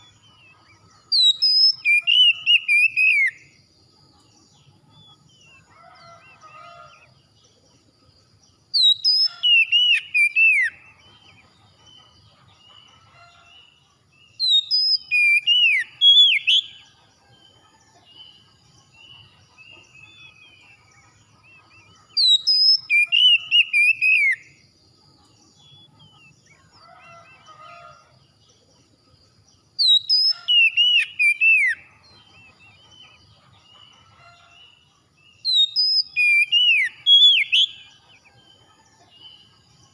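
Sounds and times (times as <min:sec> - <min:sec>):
soft bird chirps: 0:00.0 - 0:39.9
songbird whistling phrases: 0:01.1 - 0:03.4, 0:14.4 - 0:16.7, 0:22.2 - 0:24.4, 0:29.8 - 0:31.8, 0:35.5 - 0:37.8.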